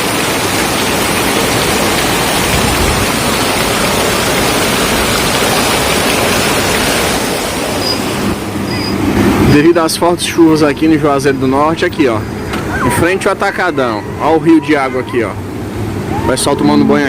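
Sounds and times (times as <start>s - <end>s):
heavy rain hissing: 0.0s - 16.2s.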